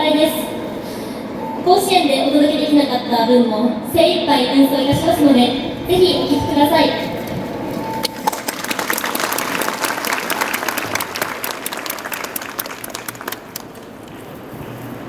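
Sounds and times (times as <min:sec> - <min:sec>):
audience applauding: 0:08.0 - 0:14.2.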